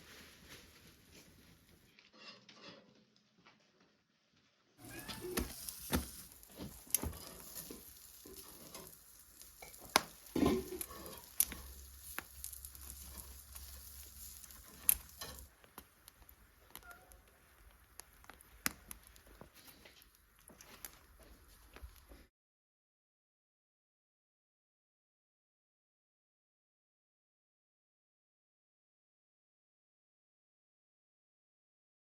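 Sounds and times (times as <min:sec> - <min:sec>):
food sizzling in a pan: 0:04.8 - 0:22.3.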